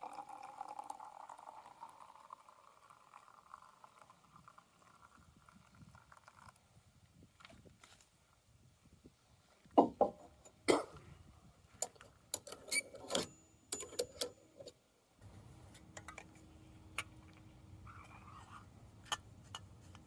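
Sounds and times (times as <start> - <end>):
steady low hum: 15.2 - 20.0.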